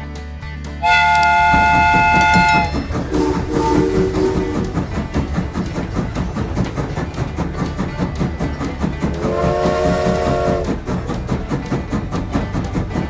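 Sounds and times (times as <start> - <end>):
train rhythmic clatter: 0.0 - 13.0
train horn chord: 0.8 - 5.8, 9.2 - 10.9.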